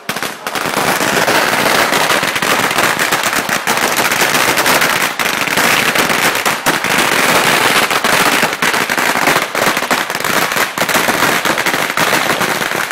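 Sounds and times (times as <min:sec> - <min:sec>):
firecrackers exploding rapidly: 0:00.0 - 0:12.9.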